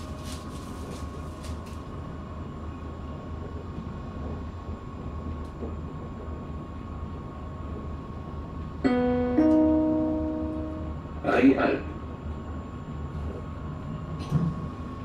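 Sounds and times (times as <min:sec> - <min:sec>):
train interior rumble: 0:00.0 - 0:15.0
faint steady whine: 0:08.6 - 0:14.1
two-note chime: 0:08.8 - 0:11.2.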